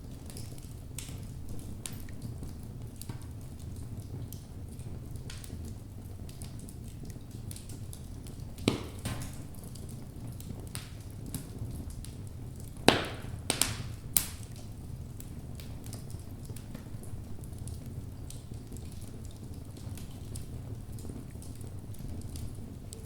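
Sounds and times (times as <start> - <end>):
small crackles: 0.0 - 23.0
wood pops: 8.6 - 9.4.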